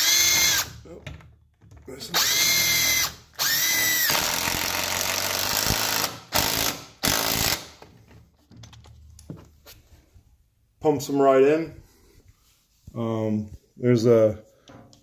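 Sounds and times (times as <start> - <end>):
impact driver impacting: 2.0 - 7.9.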